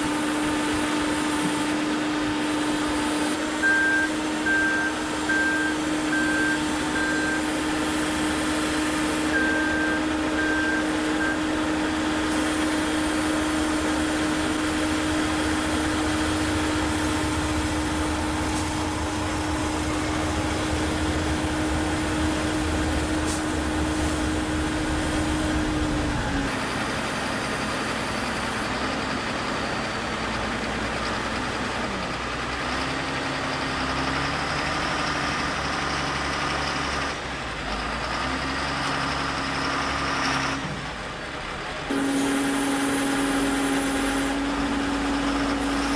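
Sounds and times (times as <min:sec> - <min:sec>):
heavy machinery engine running: 0:00.0 - 0:45.9
back-up alarm beeping: 0:03.6 - 0:12.2, 0:13.4 - 0:25.7.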